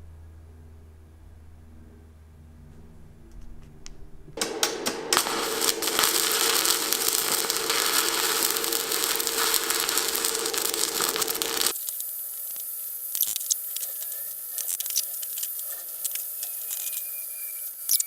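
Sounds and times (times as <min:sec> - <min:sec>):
arc welder crackling buzz: 0:04.4 - 0:18.0
welder hum: 0:04.4 - 0:18.0.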